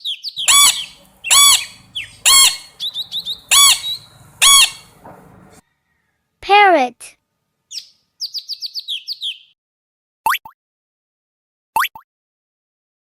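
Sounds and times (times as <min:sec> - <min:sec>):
short high chirps: 0:00.4 - 0:04.8
parrot squawking: 0:00.4 - 0:05.6.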